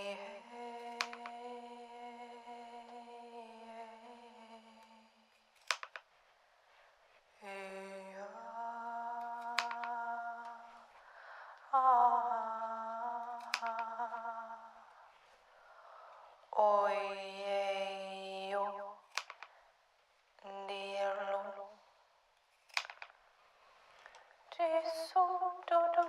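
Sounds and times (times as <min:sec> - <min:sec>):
sharp clicks: 0:00.9 - 0:01.4, 0:05.6 - 0:06.1, 0:09.2 - 0:10.0, 0:13.2 - 0:14.2, 0:19.1 - 0:19.6, 0:22.6 - 0:23.2
person humming held tones: 0:07.4 - 0:10.9, 0:11.6 - 0:15.0.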